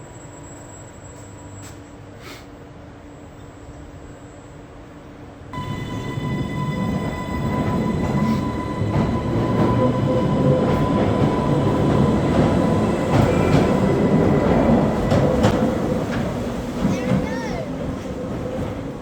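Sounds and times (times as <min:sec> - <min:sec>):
electric train rumbling on rails: 0:00.0 - 0:19.0
faint train whine: 0:00.0 - 0:19.0.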